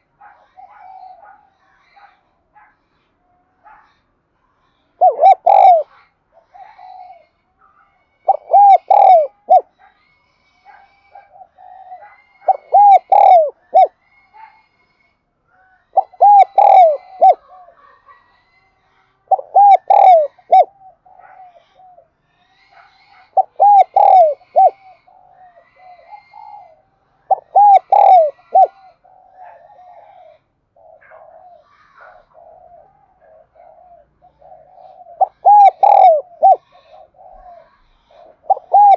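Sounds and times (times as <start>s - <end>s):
dove cooing: 0.0s - 1.4s, 5.0s - 5.9s, 8.2s - 9.7s, 11.1s - 13.9s, 15.9s - 18.0s, 19.3s - 22.1s, 23.0s - 38.9s.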